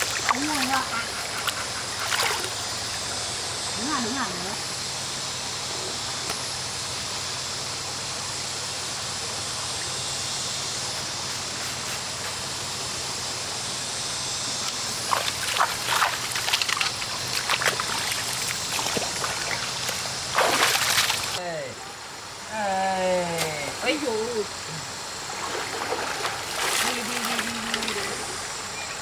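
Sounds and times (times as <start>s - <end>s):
splashing in water: 0.0s - 3.3s, 14.8s - 21.4s, 25.2s - 28.7s
stream running: 0.0s - 29.0s.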